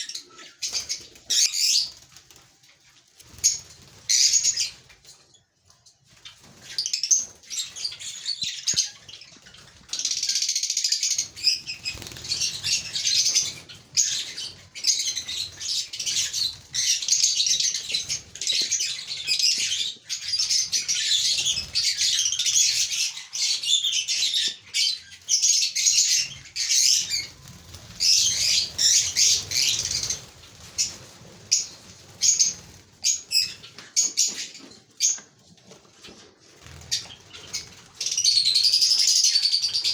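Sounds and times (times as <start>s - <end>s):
wing flutters: 11.4s - 14.4s, 26.6s - 33.6s
birds chattering shrilly: 25.3s - 34.6s.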